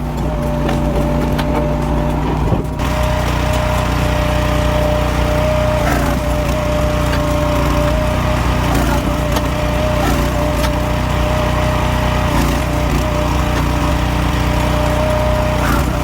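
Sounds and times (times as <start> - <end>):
firewood processor engine running: 0.0 - 16.0
steady machine whine: 0.0 - 16.0.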